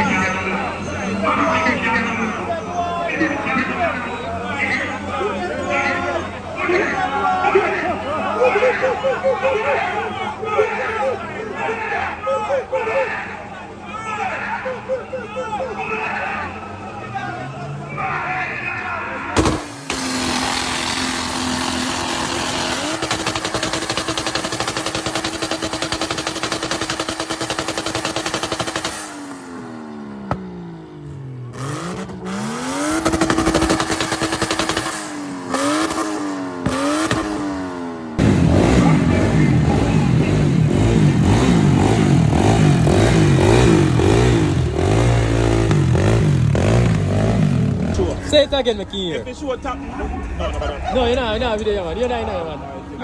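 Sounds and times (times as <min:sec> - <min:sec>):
car engine hitting rev limiter: 0:19.2 - 0:53.0.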